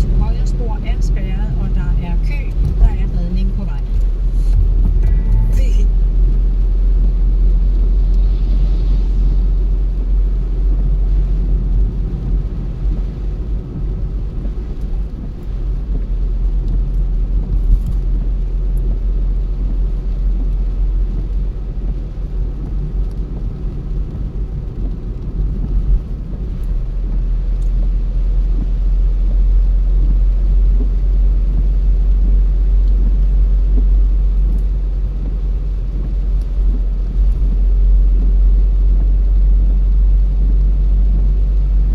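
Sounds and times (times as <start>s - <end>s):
car driving: 0.0s - 41.9s.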